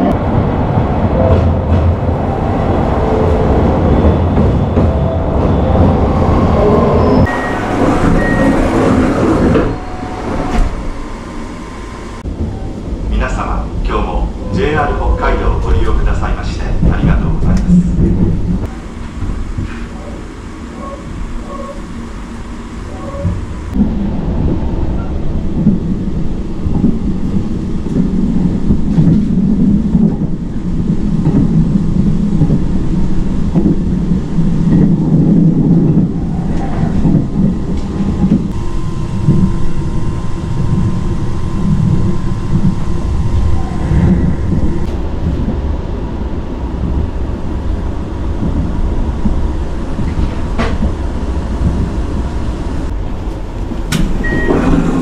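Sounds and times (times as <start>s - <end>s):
train rumble inside carriage: 0.0s - 55.0s.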